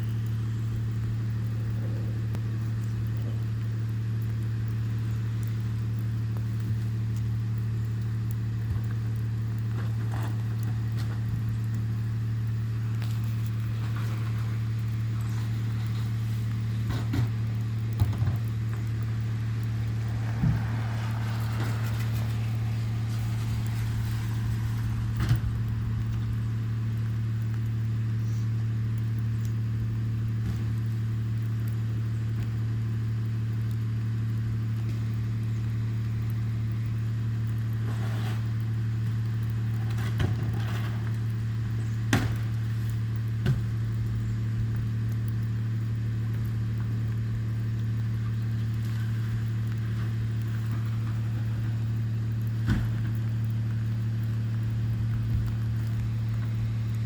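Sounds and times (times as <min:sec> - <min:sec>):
vehicle engine idling: 0:00.0 - 0:57.0.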